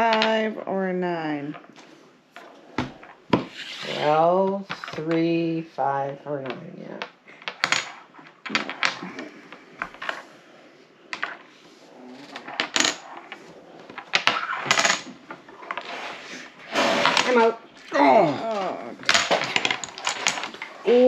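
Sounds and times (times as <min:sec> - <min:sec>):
game pieces clacking on table: 0:06.4 - 0:10.2, 0:11.1 - 0:11.5, 0:12.2 - 0:16.1, 0:18.5 - 0:21.0.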